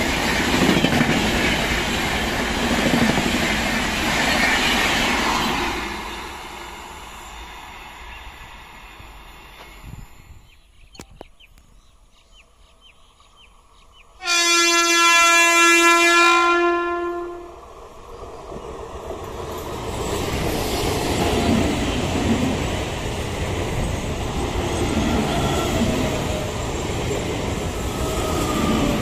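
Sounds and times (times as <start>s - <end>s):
train rumble and wheel noise: 0.0s - 29.0s
train horn blast: 14.2s - 17.6s.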